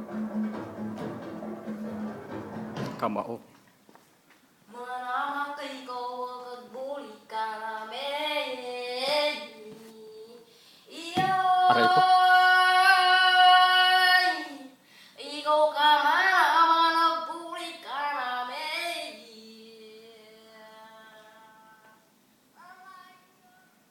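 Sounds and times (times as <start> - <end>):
high voice singing: 11.2 - 14.0.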